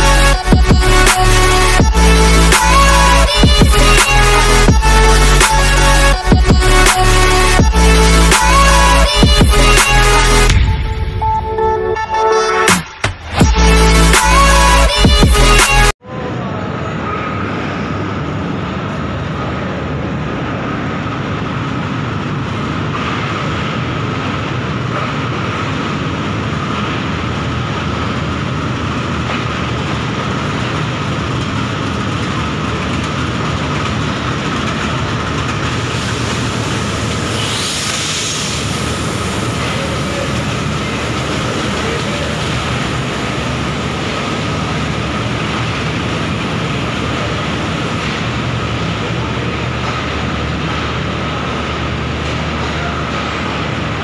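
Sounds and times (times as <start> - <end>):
diesel train rolling over rails: 13.3 - 54.0.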